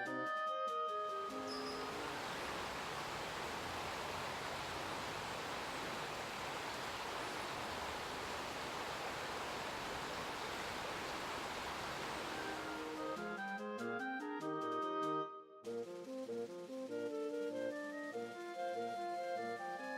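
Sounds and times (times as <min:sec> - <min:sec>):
steady rushing noise: 0:01.9 - 0:13.4.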